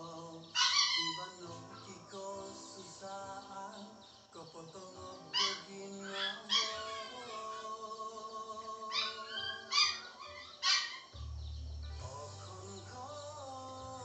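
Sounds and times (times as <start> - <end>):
music with long held notes: 11.2 - 14.0.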